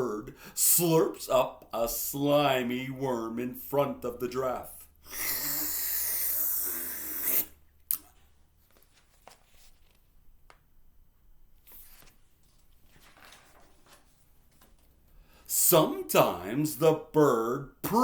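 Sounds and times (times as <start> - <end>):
person slurping with mouth: 5.0 - 8.1
faint rustling: 8.0 - 15.4.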